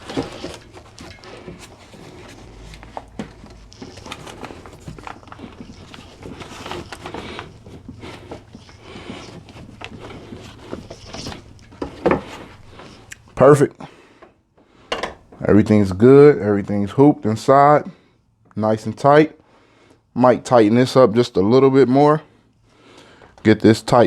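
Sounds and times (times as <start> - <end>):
fabric rustling: 0.0 - 13.4.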